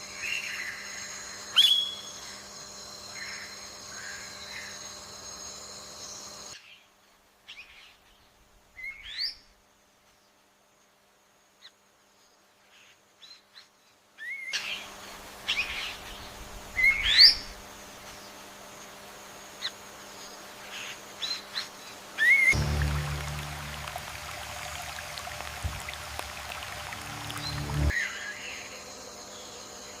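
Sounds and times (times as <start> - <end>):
background hiss and hum: 14.6 - 30.0.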